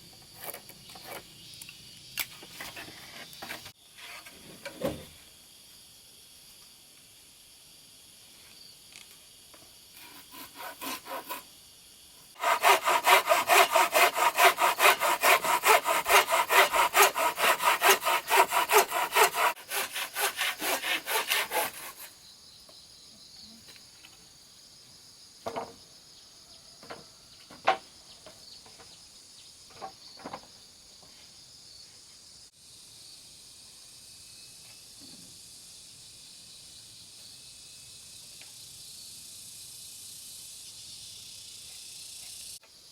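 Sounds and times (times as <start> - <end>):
hand saw cutting wood: 10.0 - 11.5, 12.4 - 22.1.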